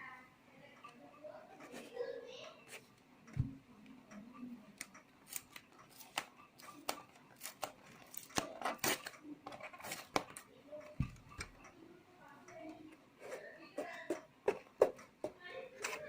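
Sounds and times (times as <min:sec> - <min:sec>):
plastic parts clicking and snapping: 0:04.8 - 0:11.7.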